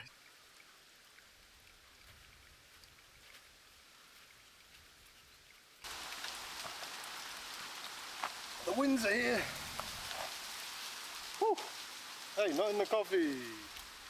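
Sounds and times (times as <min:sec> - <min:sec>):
faint outdoor hiss: 0:00.0 - 0:14.0
wind rustling leaves: 0:00.0 - 0:14.0
light ticks: 0:00.5 - 0:03.6, 0:13.7 - 0:14.0.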